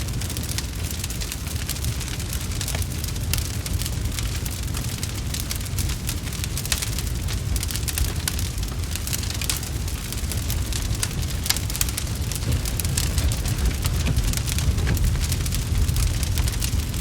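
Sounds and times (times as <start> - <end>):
wood fire crackling: 0.0 - 17.0
steady low rumble: 2.2 - 17.0.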